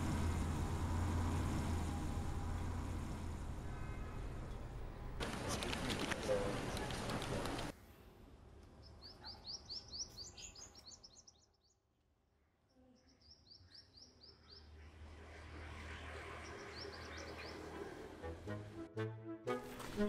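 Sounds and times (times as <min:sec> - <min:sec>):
small bird chirping: 0:08.8 - 0:11.8.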